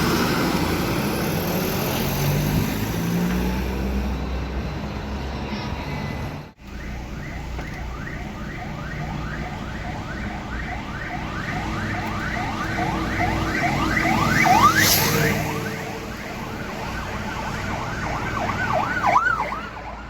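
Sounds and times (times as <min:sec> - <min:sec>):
siren yelping: 0:06.6 - 0:20.0.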